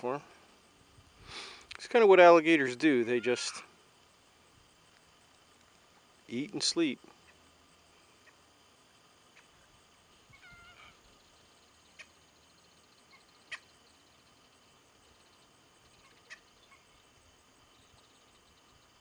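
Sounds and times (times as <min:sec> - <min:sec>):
faint bird calls: 0:07.1 - 0:19.0.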